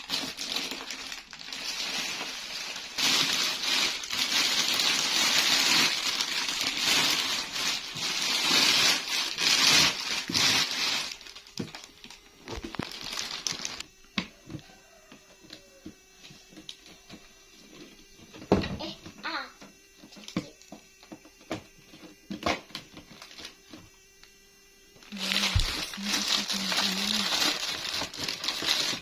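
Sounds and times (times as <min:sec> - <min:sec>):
packaging crinkling: 0:00.0 - 0:13.9, 0:25.1 - 0:29.0.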